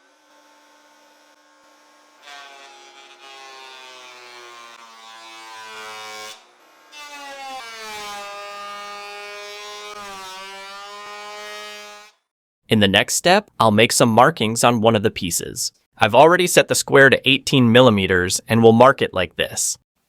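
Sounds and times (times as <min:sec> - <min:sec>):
thickness planer cutting boards: 0:00.0 - 0:12.2.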